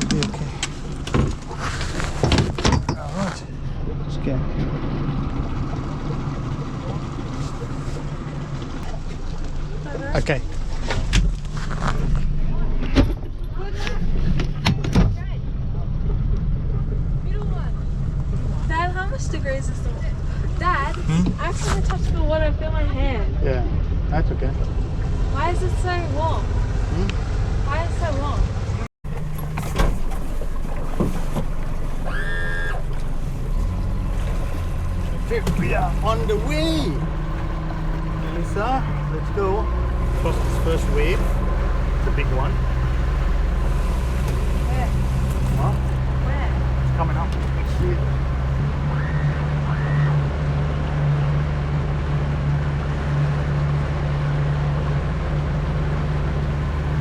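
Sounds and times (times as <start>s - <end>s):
boat engine droning: 0.0s - 57.0s
wind and water rushing: 28.4s - 57.0s.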